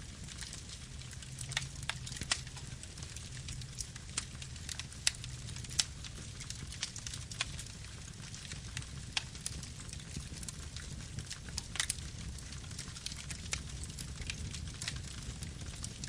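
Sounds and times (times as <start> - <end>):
low rumble of flames: 0.0 - 16.0
wood crackling and popping: 0.0 - 16.0.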